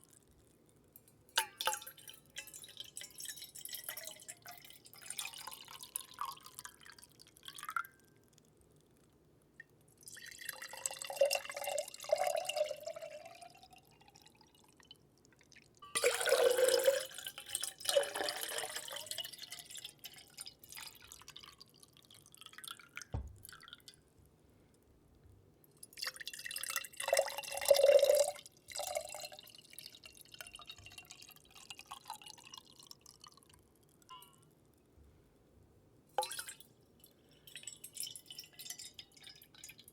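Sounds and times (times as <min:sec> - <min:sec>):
water dripping and splashing: 0:18.5 - 0:24.0.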